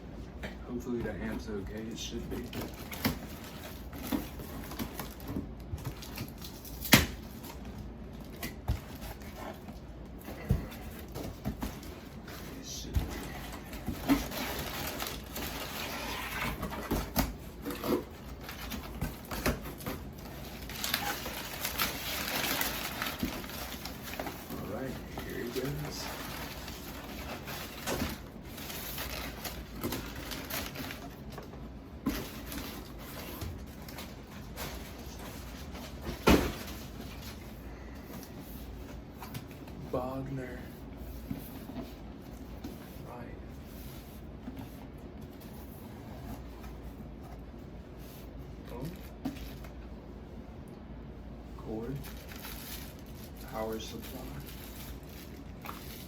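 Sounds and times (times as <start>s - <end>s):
cardboard and packing rustling: 0.2s - 50.0s, 51.5s - 56.0s
packing rustling: 10.7s - 37.6s.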